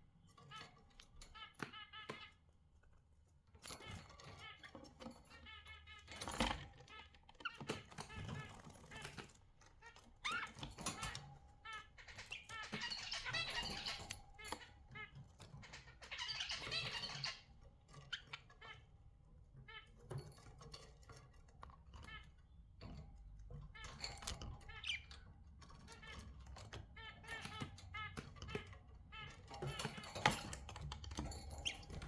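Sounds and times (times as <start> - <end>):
budgerigars chattering: 9.8 - 19.0.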